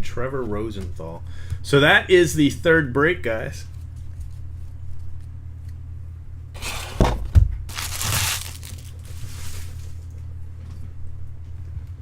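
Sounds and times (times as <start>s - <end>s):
wrappers crinkling and rustling: 7.7s - 10.1s.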